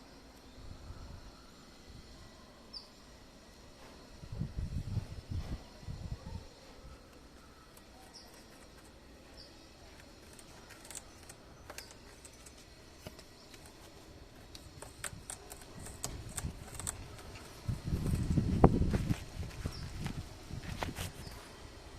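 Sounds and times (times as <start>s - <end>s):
faint high chirps: 5.6s - 13.7s
parrot chewing stem: 9.7s - 18.4s.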